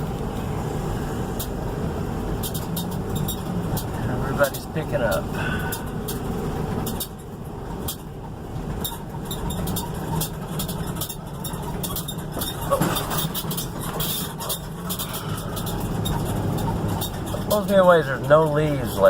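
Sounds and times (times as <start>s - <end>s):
car engine and road rumble: 0.0s - 19.0s
short clicks and rattles: 8.8s - 19.0s.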